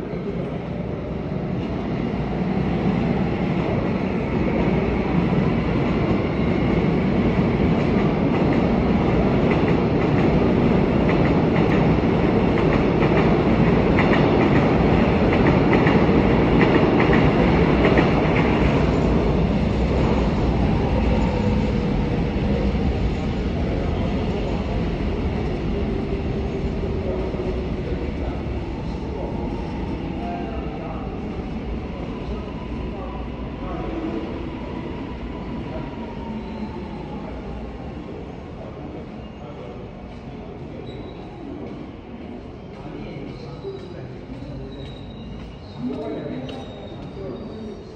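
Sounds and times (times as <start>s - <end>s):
train wheels rumbling on rail: 1.4s - 39.0s.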